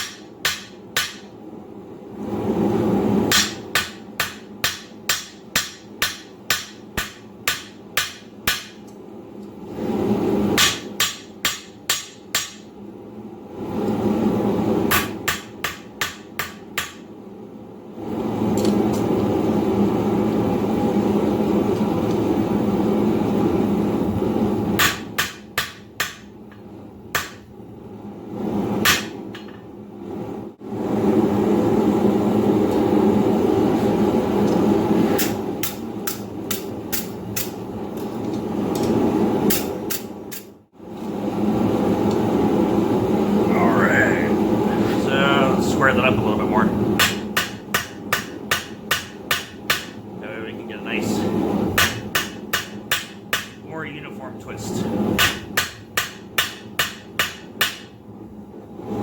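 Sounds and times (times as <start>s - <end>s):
hammer striking steel on anvil: 0.0s - 1.3s, 3.3s - 8.9s, 10.6s - 12.7s, 14.9s - 17.0s, 24.8s - 26.3s, 27.1s - 27.5s, 28.8s - 29.6s, 47.0s - 50.0s, 51.8s - 53.6s, 55.2s - 58.0s
loud steady rushing noise: 41.5s - 56.1s.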